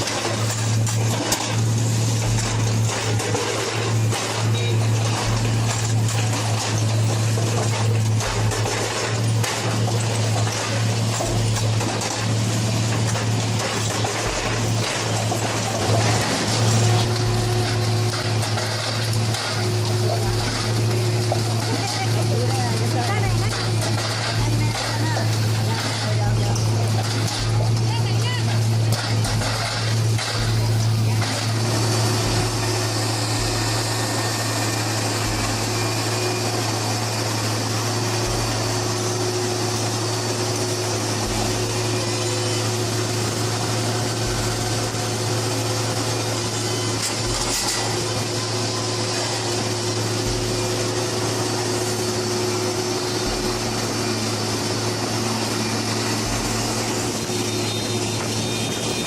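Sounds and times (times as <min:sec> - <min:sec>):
construction machinery humming: 0:00.0 - 0:59.0
deep machine throb: 0:56.0 - 0:57.3.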